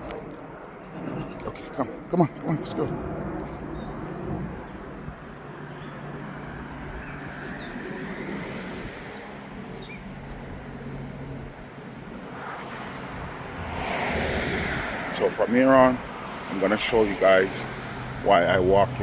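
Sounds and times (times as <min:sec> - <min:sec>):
vehicle passing: 0:00.0 - 0:19.0
car engine humming: 0:02.5 - 0:19.0
small birds chirping: 0:03.3 - 0:10.7.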